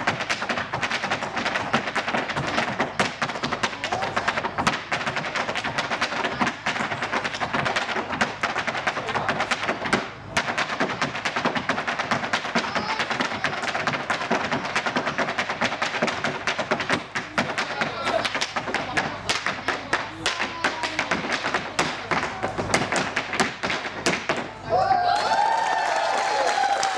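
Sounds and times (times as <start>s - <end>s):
hard shoes tapping and stamping: 0.0s - 24.6s.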